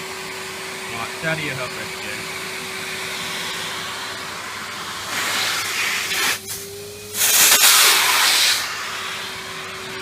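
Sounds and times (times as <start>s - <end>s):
vacuum cleaner motor humming: 0.0s - 10.0s
air rushing through nozzle: 2.8s - 9.7s.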